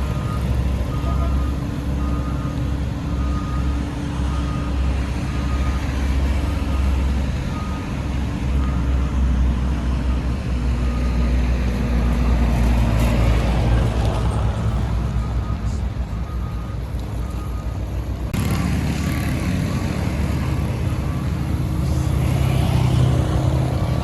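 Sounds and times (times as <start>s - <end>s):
reversing alarm beeping: 0.0s - 9.4s, 10.0s - 11.4s, 15.1s - 18.0s, 19.7s - 23.1s
diesel engine running: 0.0s - 24.0s.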